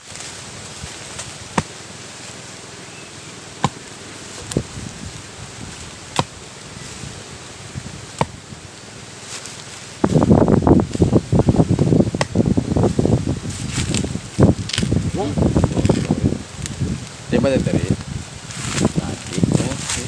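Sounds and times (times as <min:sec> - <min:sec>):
blade chopping bamboo roots: 0:01.0 - 0:02.0, 0:03.6 - 0:04.7, 0:05.8 - 0:06.6, 0:08.1 - 0:08.4, 0:12.1 - 0:12.4.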